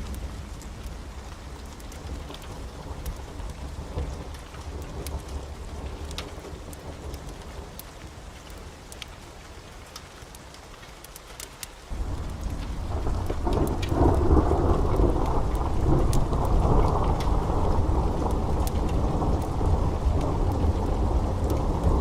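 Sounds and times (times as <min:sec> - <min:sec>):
heavy rain: 0:00.0 - 0:22.0
thunder rumbling: 0:11.9 - 0:22.0.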